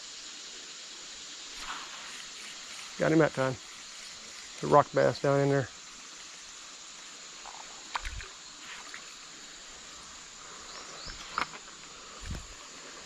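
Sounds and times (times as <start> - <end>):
creek water running: 0.0 - 13.0
knocks and splashes: 7.4 - 9.0.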